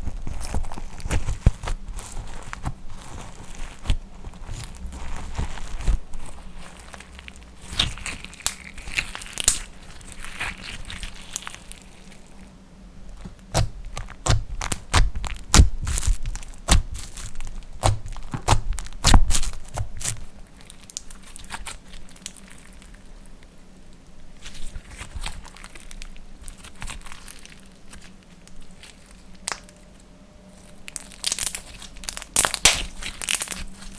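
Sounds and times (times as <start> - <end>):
slime clicking and popping: 7.7 - 9.7, 13.2 - 20.2, 31.2 - 33.6.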